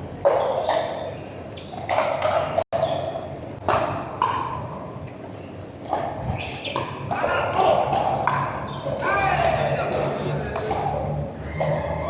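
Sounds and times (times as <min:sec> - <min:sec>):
paddles striking a pickleball: 0:00.2 - 0:04.8, 0:05.8 - 0:12.0.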